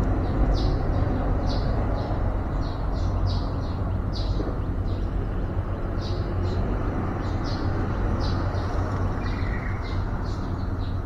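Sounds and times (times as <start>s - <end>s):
steady low rumble: 0.0s - 10.9s
small birds chirping: 0.0s - 11.0s.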